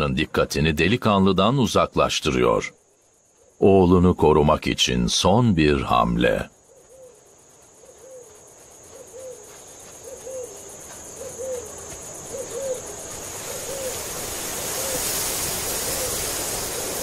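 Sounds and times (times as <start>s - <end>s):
insect trill: 0.0s - 17.0s
bird hooting: 6.6s - 7.2s, 7.8s - 17.0s
hiss: 11.4s - 17.0s.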